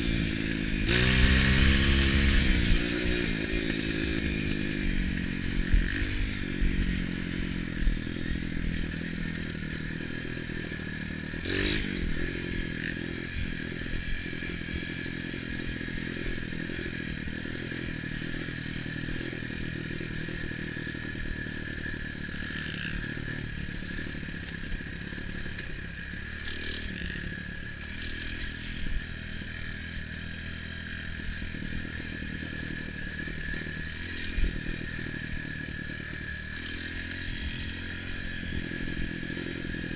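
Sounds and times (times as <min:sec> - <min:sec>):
motorcycle engines running: 0:00.0 - 0:39.9
clatter: 0:17.7 - 0:39.9.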